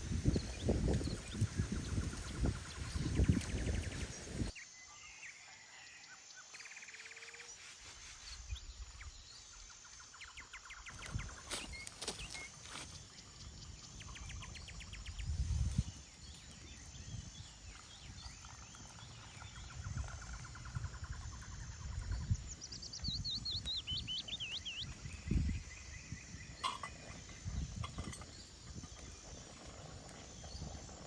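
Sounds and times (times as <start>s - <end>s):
wind buffeting microphone: 0.0s - 4.5s, 10.9s - 31.0s
songbirds chirping: 0.0s - 31.0s.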